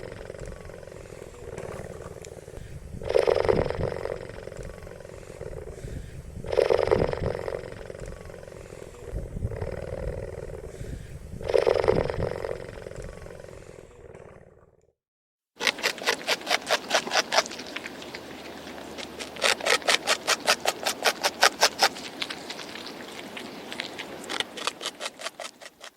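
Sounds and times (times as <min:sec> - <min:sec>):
large animal roaring: 0:00.0 - 0:14.8
fast sharp clicks: 0:15.6 - 0:18.2, 0:18.9 - 0:25.9.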